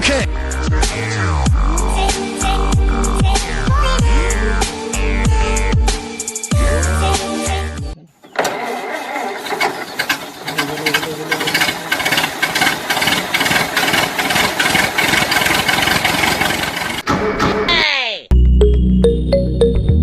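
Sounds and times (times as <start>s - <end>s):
small engine clattering: 8.3s - 17.0s.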